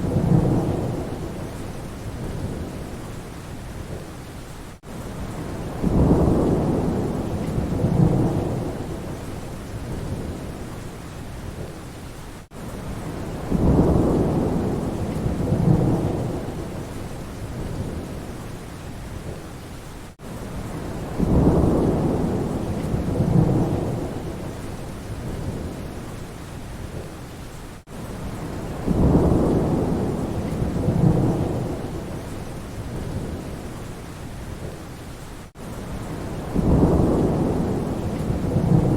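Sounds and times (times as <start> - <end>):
rolling thunder rumble: 0.0 - 3.1, 5.2 - 10.8, 12.9 - 18.4, 20.6 - 26.0, 28.2 - 33.7, 36.0 - 38.9
rain: 0.0 - 38.9.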